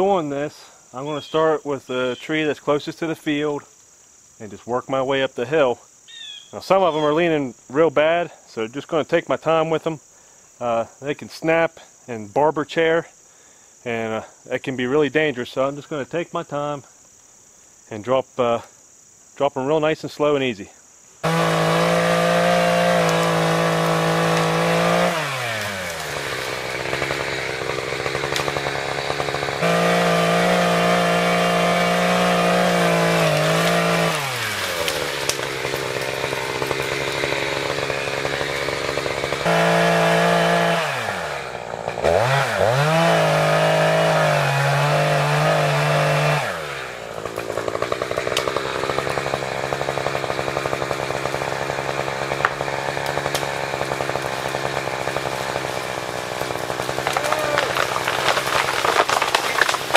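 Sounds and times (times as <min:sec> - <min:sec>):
chainsaw cutting trees: 0:21.2 - 0:59.9.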